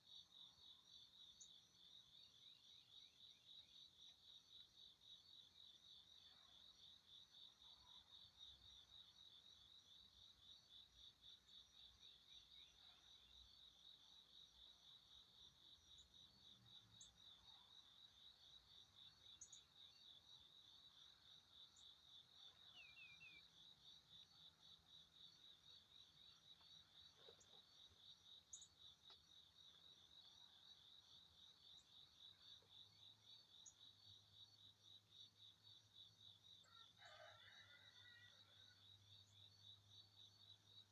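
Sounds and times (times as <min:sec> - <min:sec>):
insect chirping: 0:00.0 - 0:40.9
faint high bird chirps: 0:22.7 - 0:23.5.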